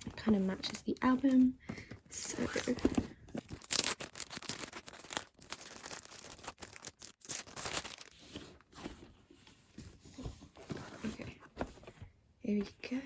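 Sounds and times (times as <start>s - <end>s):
packaging scraping and rustling: 2.2s - 11.3s.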